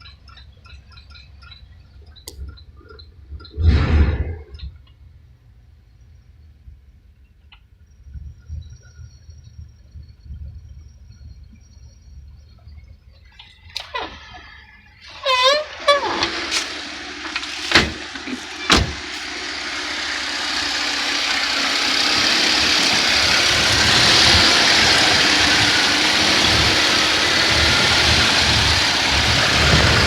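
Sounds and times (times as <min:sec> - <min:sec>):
car engine running: 0:15.1 - 0:30.0.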